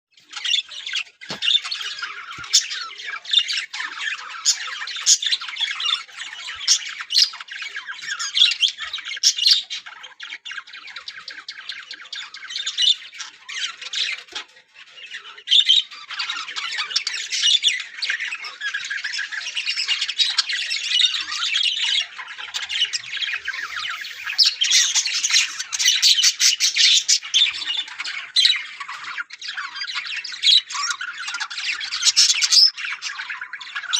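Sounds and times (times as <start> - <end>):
budgerigars chattering: 0.3 - 33.9
sharp bird squawks: 23.0 - 27.6.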